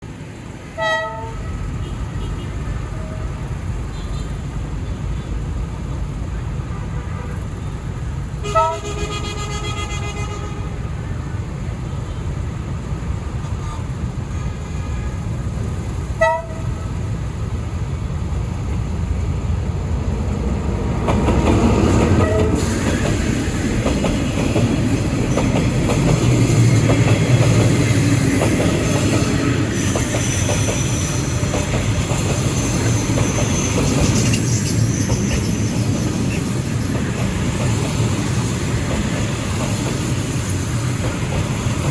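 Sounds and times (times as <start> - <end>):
train rumbling: 0.0 - 41.9
locomotive horn toot: 0.8 - 4.4, 8.4 - 10.8, 16.2 - 16.9, 22.2 - 22.8.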